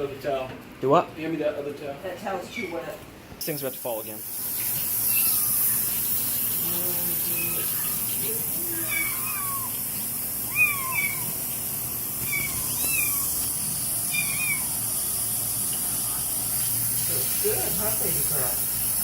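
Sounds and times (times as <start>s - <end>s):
steady hiss: 3.4s - 19.0s
kittens mewing: 4.7s - 15.2s.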